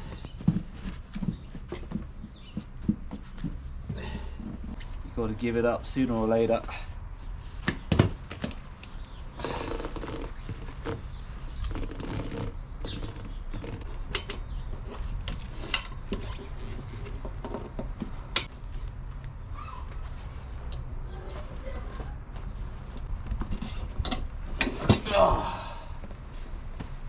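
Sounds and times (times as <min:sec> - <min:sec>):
person grunting: 0:25.1 - 0:26.0.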